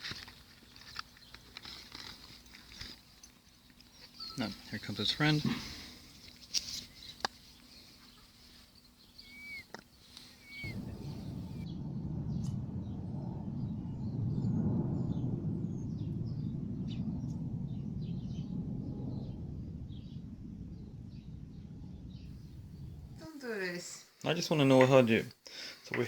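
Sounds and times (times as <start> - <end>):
bird chirps: 3.9 - 4.7, 6.9 - 11.6
low rushing noise: 10.2 - 23.4.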